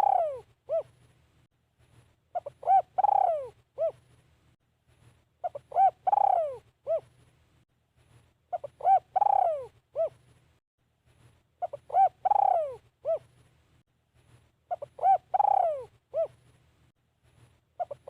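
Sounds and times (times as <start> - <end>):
dove cooing: 0.0 - 1.0, 2.3 - 4.0, 5.4 - 7.1, 8.5 - 10.2, 11.6 - 13.3, 14.7 - 16.4, 17.8 - 18.0.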